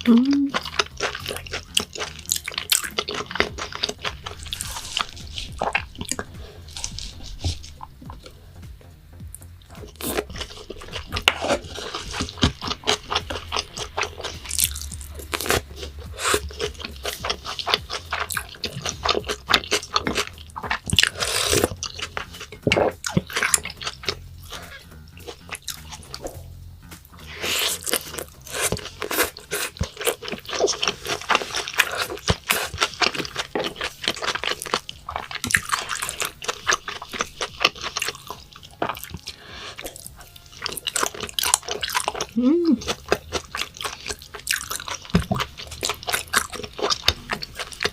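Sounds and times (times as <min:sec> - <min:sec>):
person chewing and swallowing: 0:00.0 - 0:47.9.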